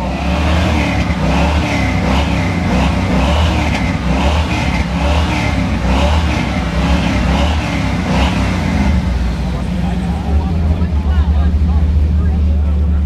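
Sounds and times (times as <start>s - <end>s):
car engine exhaust rumble: 0.0s - 13.0s.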